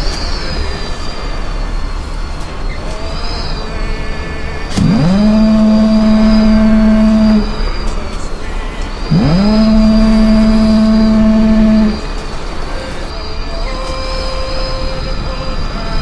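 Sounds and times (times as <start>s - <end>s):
steady rumble: 0.0s - 16.0s
long horn blasts: 3.4s - 16.0s.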